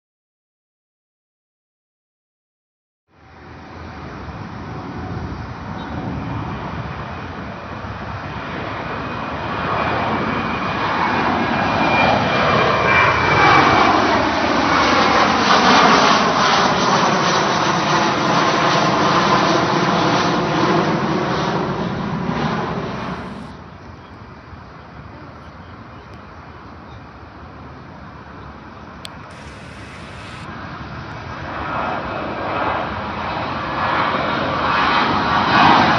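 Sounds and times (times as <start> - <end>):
high engine whine: 3.1 - 32.3
jet engine roar: 3.2 - 35.9
jet whoosh passing overhead: 3.3 - 23.7, 29.2 - 35.9.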